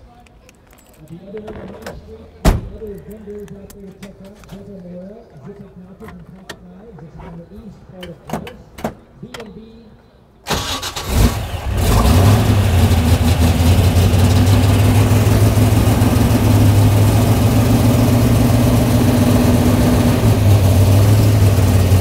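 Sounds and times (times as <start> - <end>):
loud engine idle: 11.4 - 22.0.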